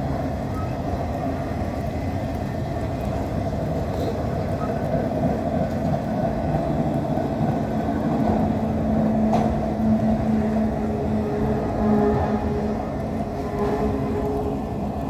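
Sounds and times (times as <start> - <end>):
freight train rumble: 0.0 - 15.0.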